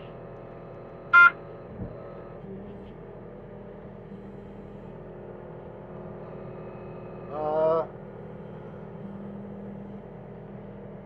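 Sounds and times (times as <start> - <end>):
diesel engine running: 0.0 - 11.0
short loud beep: 1.2 - 1.4.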